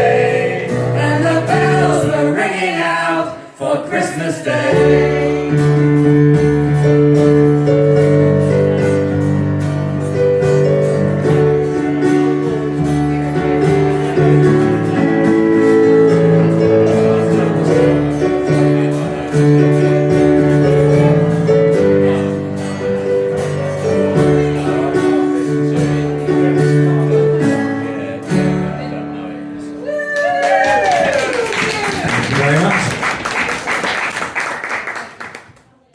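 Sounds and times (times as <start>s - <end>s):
acoustic guitar strumming: 4.8s - 29.7s.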